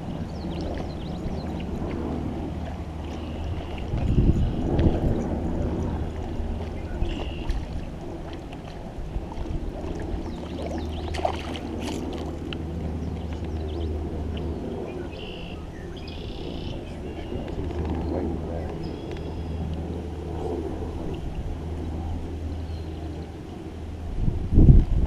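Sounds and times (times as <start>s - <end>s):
low rumble: 0.0s - 25.0s
water lapping against kayak: 0.0s - 25.0s.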